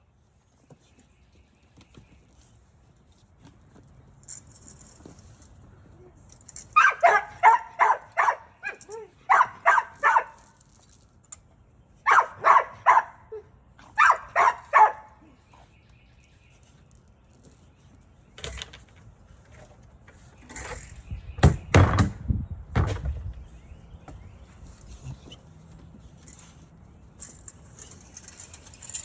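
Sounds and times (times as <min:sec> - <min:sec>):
clattering knocks and scrapes: 0:00.5 - 0:07.6, 0:16.6 - 0:29.0
dog barking: 0:06.8 - 0:10.4, 0:12.1 - 0:13.2, 0:14.0 - 0:15.2.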